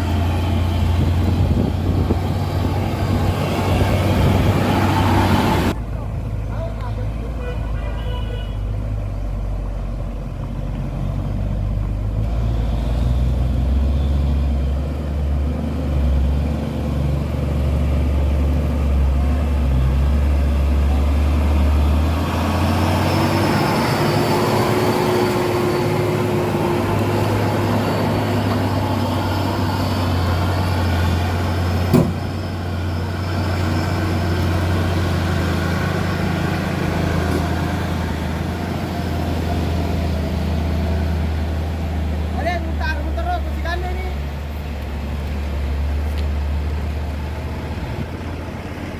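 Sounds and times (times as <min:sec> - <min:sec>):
heavy truck diesel engine running: 0:00.0 - 0:07.3, 0:14.6 - 0:48.9
sharp knock: 0:31.9 - 0:32.2.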